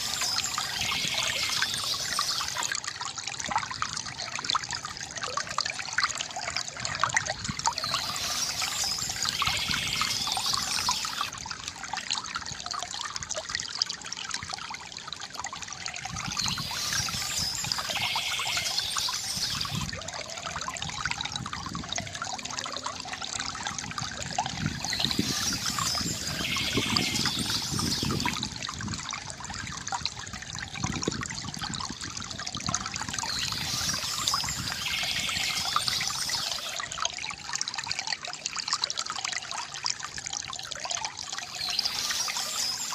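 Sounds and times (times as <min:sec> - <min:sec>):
birds chirping: 0:00.0 - 0:02.7, 0:07.8 - 0:11.3, 0:16.4 - 0:19.9, 0:24.8 - 0:28.4, 0:33.2 - 0:36.8, 0:41.5 - 0:42.9
river water gurgling: 0:00.0 - 0:42.9.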